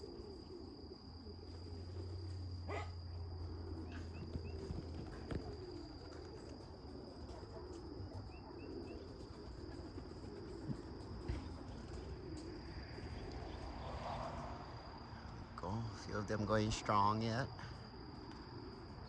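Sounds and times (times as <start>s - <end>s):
pigeons cooing: 0.0s - 15.1s
high-pitched insect trill: 0.0s - 19.0s.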